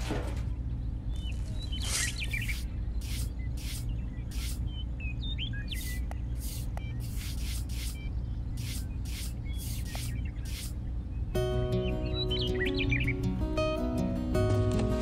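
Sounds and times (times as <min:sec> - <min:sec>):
birds chirping faintly: 0:00.0 - 0:14.2
metal trowel scraping sand: 0:01.8 - 0:04.6, 0:08.6 - 0:10.8.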